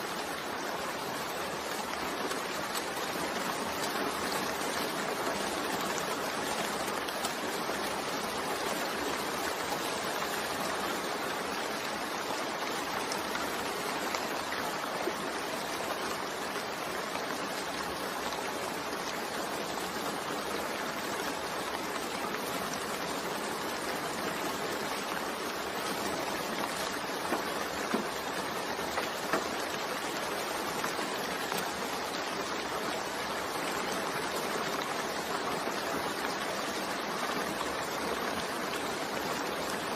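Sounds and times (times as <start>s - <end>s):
steady rain falling: 0.0s - 39.9s
raindrop taps: 26.6s - 29.9s.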